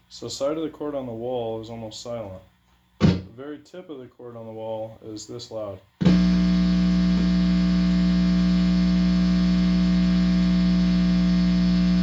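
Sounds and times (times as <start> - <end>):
guitar amplifier mains hum: 4.6 - 12.0.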